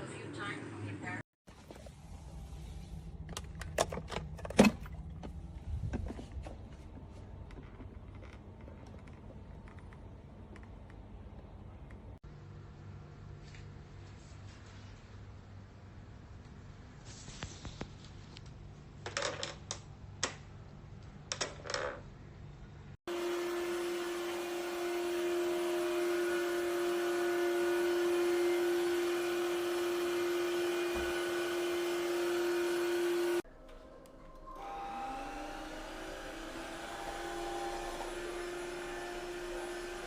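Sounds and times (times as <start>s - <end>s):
floor washer motor whine: 23.1s - 40.0s.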